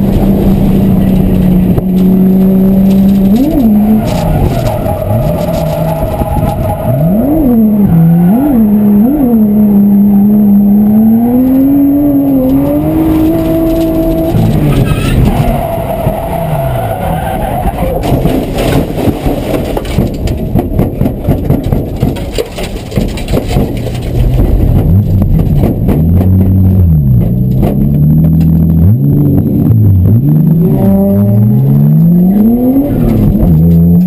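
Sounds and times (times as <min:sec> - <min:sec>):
loud rough rattling: 0:00.0 - 0:08.0, 0:12.2 - 0:28.8
car engine revving: 0:00.0 - 0:34.0.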